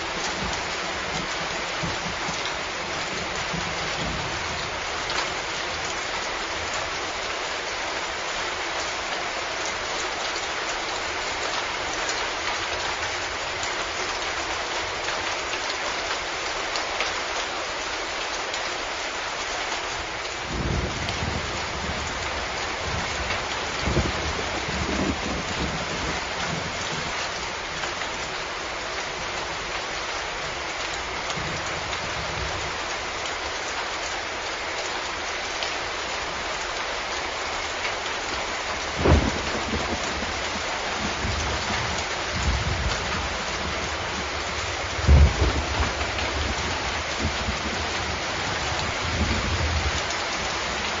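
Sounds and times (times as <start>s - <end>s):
heavy rain hissing: 17.4s - 51.0s
low thuds: 39.0s - 39.8s.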